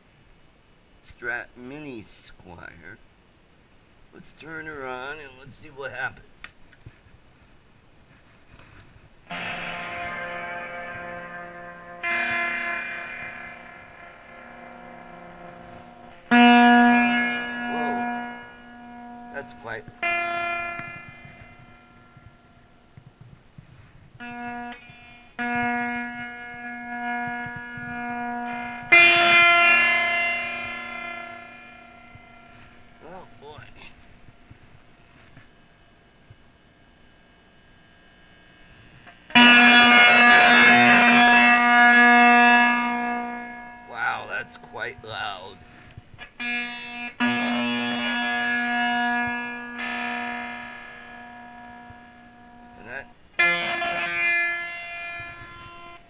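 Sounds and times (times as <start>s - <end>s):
fuzzy electric guitar notes: 9.3s - 35.6s, 37.7s - 56.0s.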